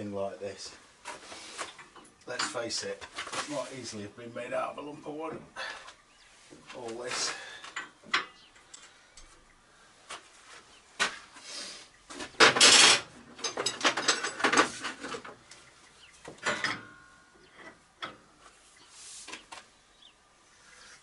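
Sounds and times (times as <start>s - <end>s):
metal parts clanking and scraping: 1.7s - 3.4s, 12.2s - 15.4s, 16.4s - 18.2s.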